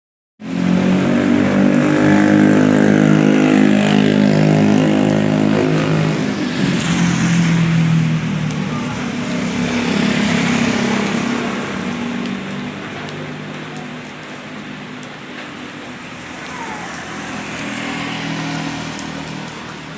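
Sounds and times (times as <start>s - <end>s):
hailstones pelting down: 8.4s - 19.9s.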